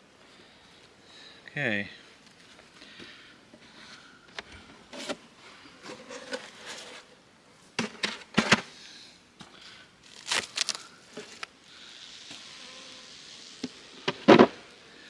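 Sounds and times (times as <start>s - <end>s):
honeybees buzzing faintly: 8.8s - 15.0s
handling clicks and rustles: 9.4s - 11.6s.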